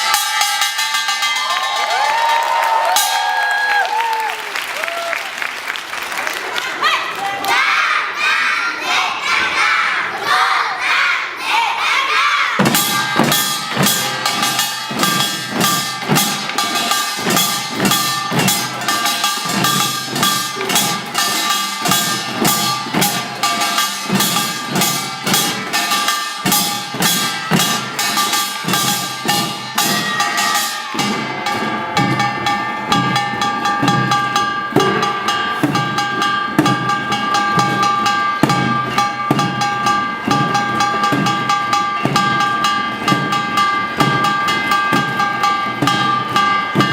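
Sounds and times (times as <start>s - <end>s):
ringing gongs: 0.0s - 3.5s, 12.6s - 46.9s
rapid drum strokes: 12.6s - 46.9s.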